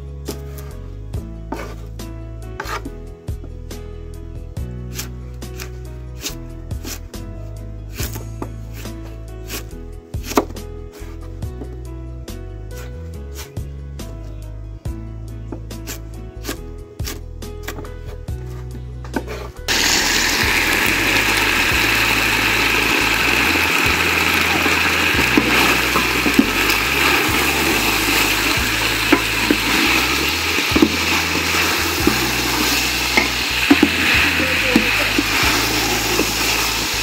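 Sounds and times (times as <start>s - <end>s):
meat sizzling in a pot: 19.7s - 37.0s.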